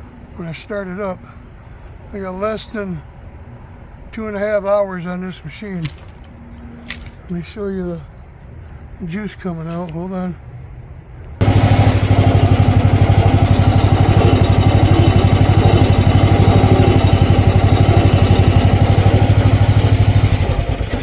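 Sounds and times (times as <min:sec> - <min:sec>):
excavator engine chugging: 0:11.4 - 0:21.0.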